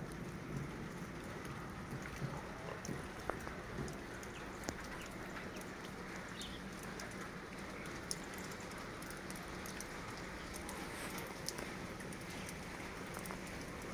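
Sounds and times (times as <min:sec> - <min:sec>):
faint light ticks: 0:00.1 - 0:13.9.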